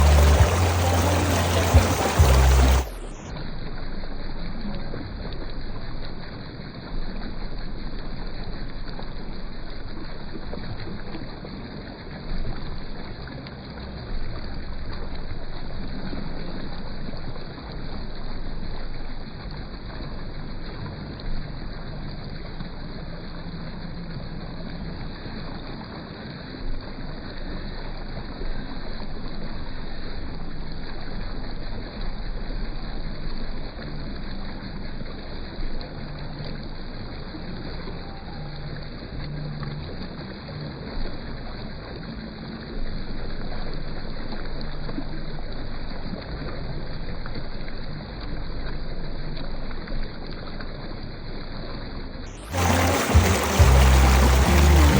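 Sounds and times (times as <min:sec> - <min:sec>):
waterfall roaring: 0:00.0 - 0:03.1, 0:52.4 - 0:54.9.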